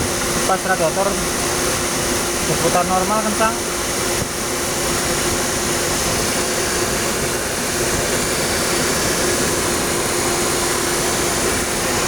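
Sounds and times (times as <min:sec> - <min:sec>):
radiator cooling fan whooshing: 0:00.0 - 0:12.0.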